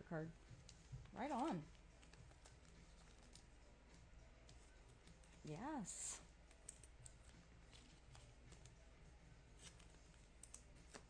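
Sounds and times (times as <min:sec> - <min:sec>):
trading cards rustling: 0:00.6 - 0:03.6, 0:06.4 - 0:08.8, 0:09.5 - 0:11.0.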